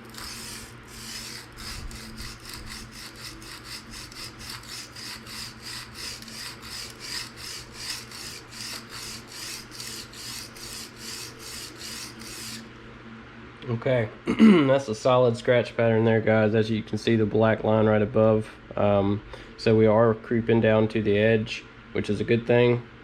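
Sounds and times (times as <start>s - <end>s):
knife blade scraping on sharpening stone: 0.0s - 12.6s.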